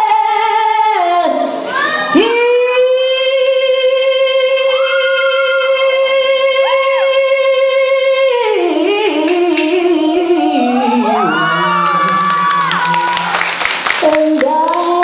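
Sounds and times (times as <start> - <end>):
woman singing: 0.0 - 13.3, 13.9 - 15.0.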